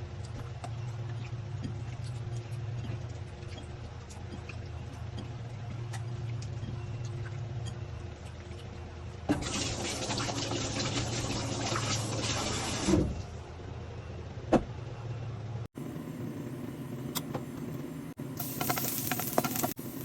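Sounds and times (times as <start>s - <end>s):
water running from a tap: 9.4s - 12.8s.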